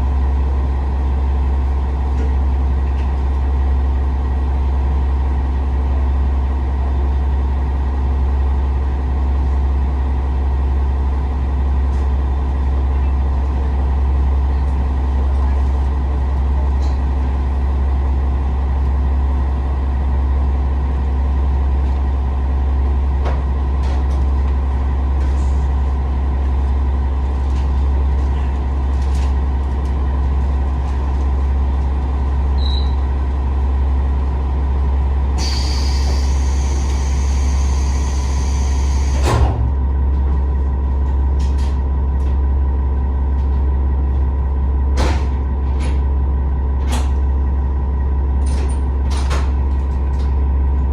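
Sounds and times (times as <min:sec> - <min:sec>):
diesel railcar engine humming: 0:00.0 - 0:50.9
compressed air hissing: 0:35.4 - 0:39.2
sharp clunk: 0:39.2 - 0:39.7.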